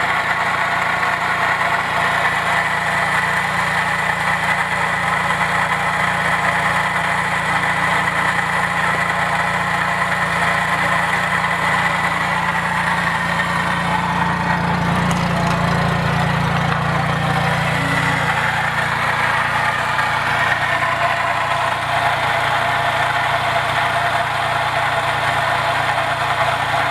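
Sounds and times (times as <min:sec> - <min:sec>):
snowmobile engine idling: 0:00.0 - 0:26.9.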